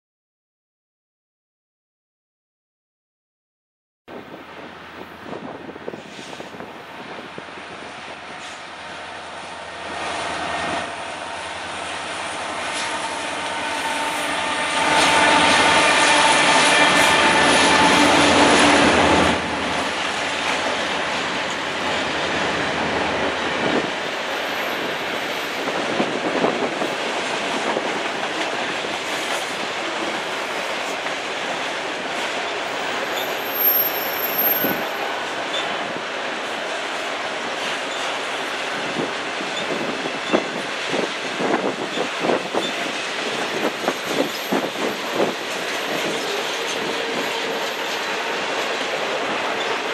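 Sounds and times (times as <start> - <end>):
freight train wheels on rails: 4.1 - 49.9
diesel locomotive engines humming: 4.5 - 49.9
high wheel squeals: 32.7 - 35.8.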